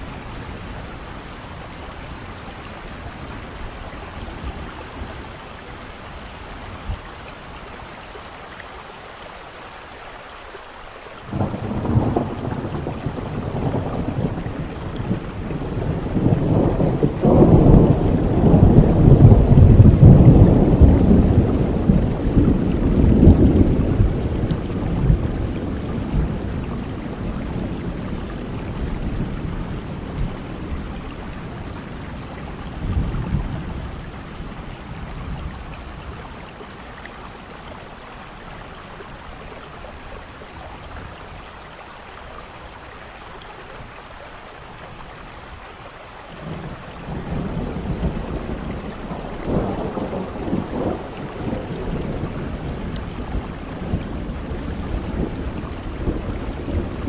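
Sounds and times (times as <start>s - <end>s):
steady rain falling: 0.0s - 57.0s
rolling thunder: 11.3s - 36.6s, 46.4s - 57.0s.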